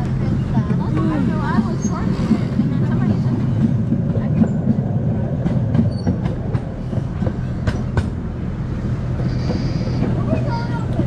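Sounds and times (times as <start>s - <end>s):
miniature train rumbling: 0.0s - 11.0s.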